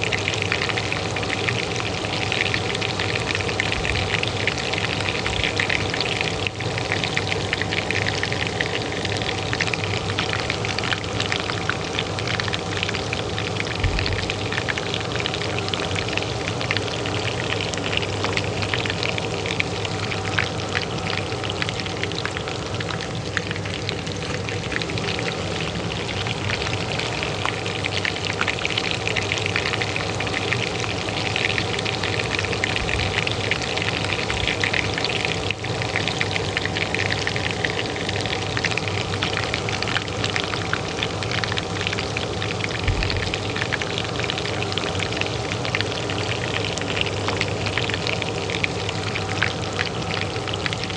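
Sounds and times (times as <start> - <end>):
hot oil frying in a pan: 0.0 - 50.9
range hood fan humming: 0.0 - 50.9.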